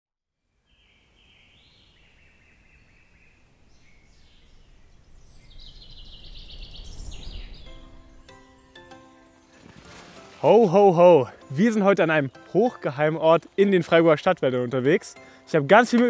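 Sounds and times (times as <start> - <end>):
low rumble: 3.5 - 8.6.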